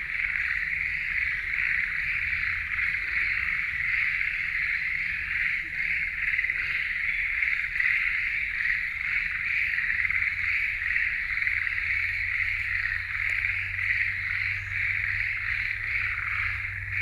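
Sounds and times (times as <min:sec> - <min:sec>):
frogs chorus trilling: 0:00.0 - 0:17.0.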